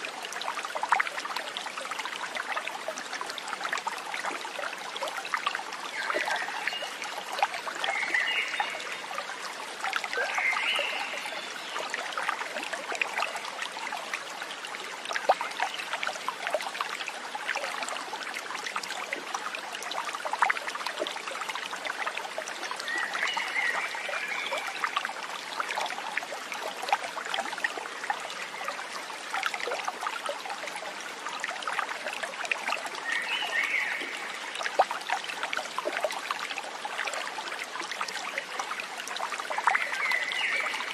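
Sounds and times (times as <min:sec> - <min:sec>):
stream trickling over stones: 0:00.0 - 0:40.9.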